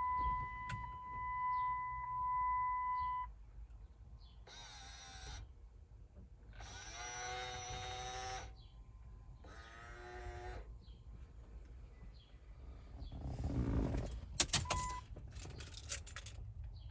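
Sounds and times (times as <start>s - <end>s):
electronic warning tone: 0.0s - 3.3s
mirror motor whining: 6.6s - 8.6s.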